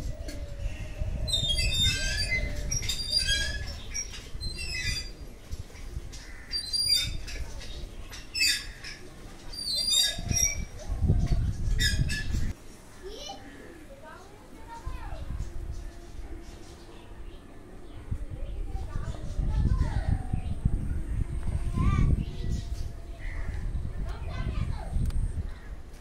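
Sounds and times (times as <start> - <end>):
low microphone rumbling: 10.1 - 12.6, 14.8 - 25.9.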